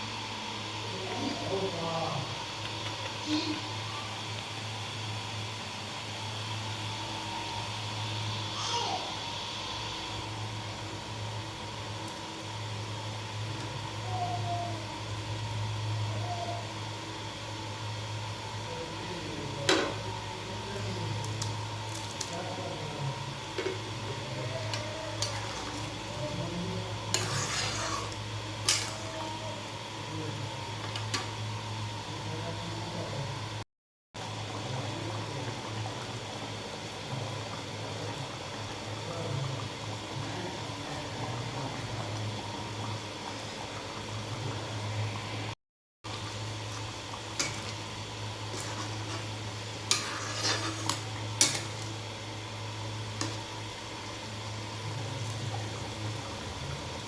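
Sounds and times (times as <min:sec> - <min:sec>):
metal spoon scraping a pan: 0:27.1 - 0:29.0, 0:47.4 - 0:47.7, 0:48.5 - 0:51.9
steady low hum: 0:34.2 - 0:57.0.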